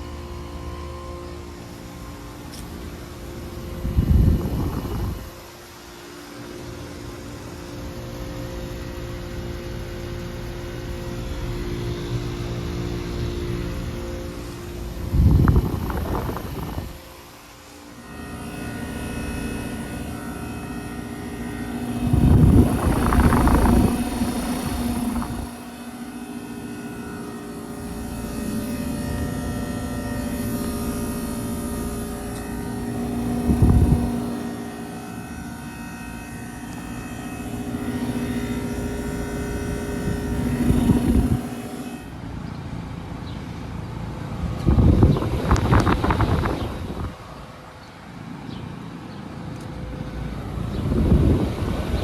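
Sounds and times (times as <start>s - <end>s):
compressor hum: 0.0s - 52.0s
fan noise: 0.0s - 52.0s
loud rushing swell: 18.0s - 34.8s.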